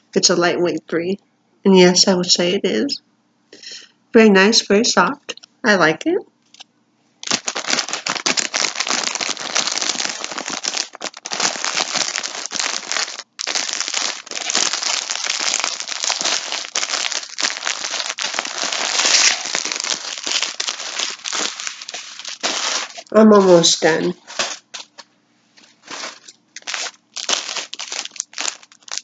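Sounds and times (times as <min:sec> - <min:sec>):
plastic packaging crinkling: 0:07.2 - 0:29.0.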